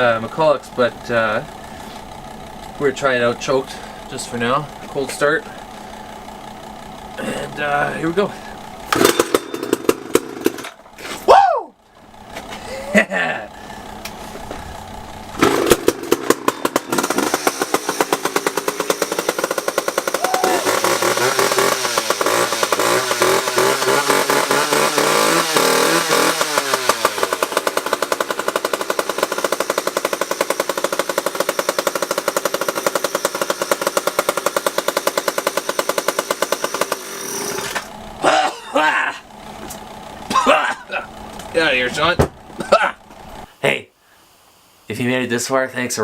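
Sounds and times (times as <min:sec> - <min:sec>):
chainsaw engine revving: 0:06.2 - 0:11.1, 0:15.2 - 0:38.4.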